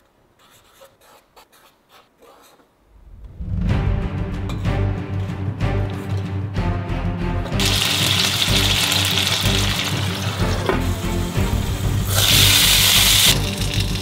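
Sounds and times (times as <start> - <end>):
background music: 3.1 - 14.0
dumplings sizzling in oil: 7.6 - 14.0.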